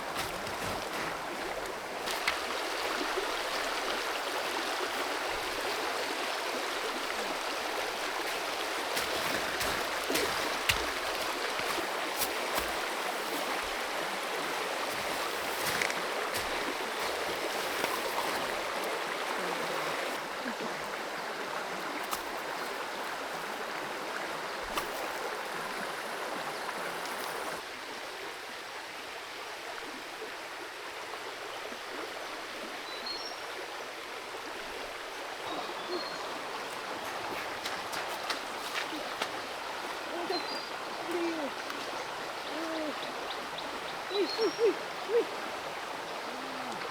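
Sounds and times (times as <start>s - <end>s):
creek water running over stones: 0.0s - 46.9s.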